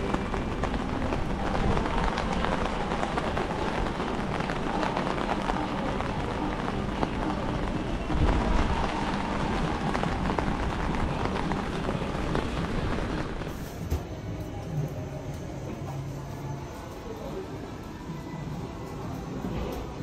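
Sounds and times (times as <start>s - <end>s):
steady rain falling: 0.0s - 13.7s.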